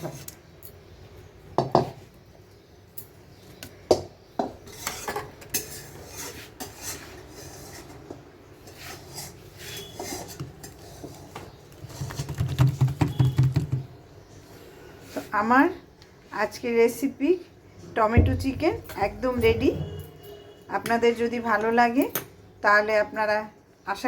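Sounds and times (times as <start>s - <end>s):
metal utensils clinking on dishes: 4.7s - 8.0s.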